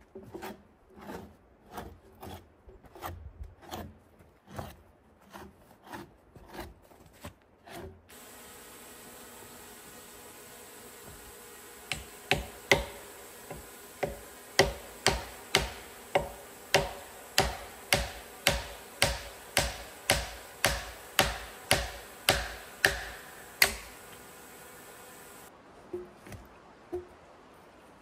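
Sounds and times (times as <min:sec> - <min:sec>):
hand tool striking wood: 0:10.9 - 0:24.2.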